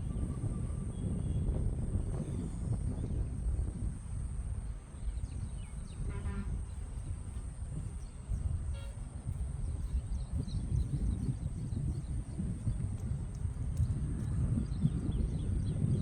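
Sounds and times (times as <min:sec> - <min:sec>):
constant high hum: 0:00.0 - 0:16.0
steady low rumble: 0:00.0 - 0:16.0
birds chirping: 0:04.6 - 0:16.0.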